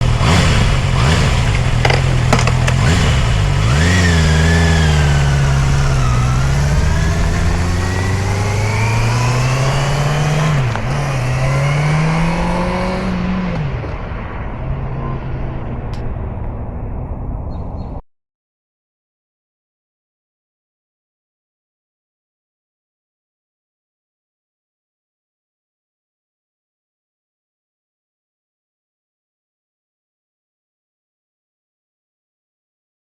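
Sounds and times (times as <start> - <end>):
motorcycle engine accelerating: 0.0 - 17.9.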